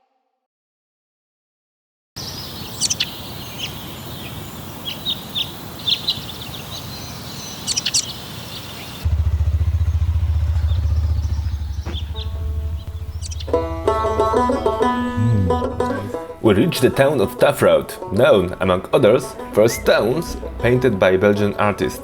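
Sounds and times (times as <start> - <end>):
small birds chirping: 2.2 - 13.6
motorcycle engine throbbing: 9.0 - 17.4, 19.0 - 21.7.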